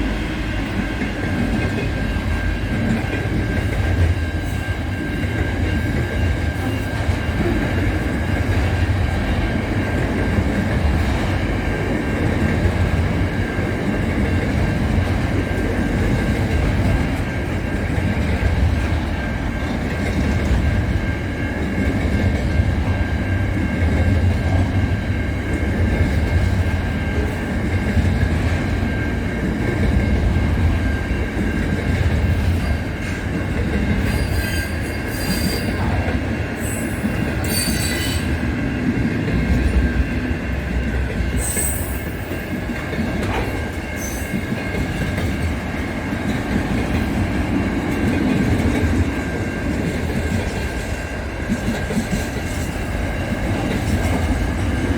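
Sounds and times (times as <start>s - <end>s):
train rumbling on rails: 0.0s - 54.9s
high-pitched wheel squeals: 34.0s - 35.7s, 36.6s - 38.3s, 41.4s - 42.3s.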